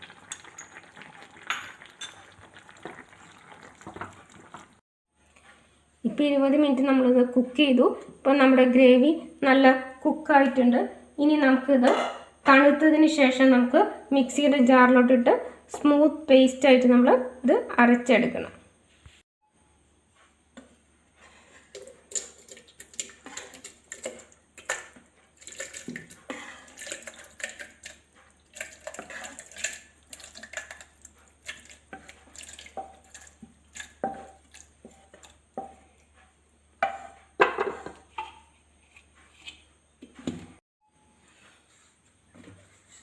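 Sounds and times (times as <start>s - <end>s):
wet gravy slopping: 0.0s - 4.8s, 21.7s - 35.5s
spoon clinking on metal pots: 21.8s - 35.8s.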